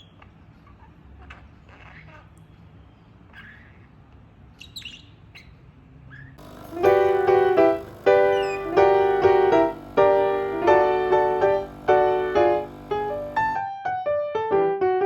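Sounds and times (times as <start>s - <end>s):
piano music: 6.4s - 15.0s.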